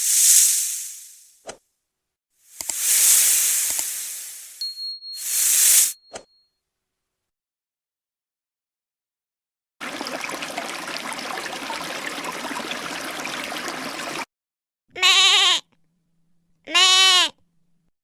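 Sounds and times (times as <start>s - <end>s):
steady rushing noise: 0.0s - 1.2s, 2.6s - 4.6s.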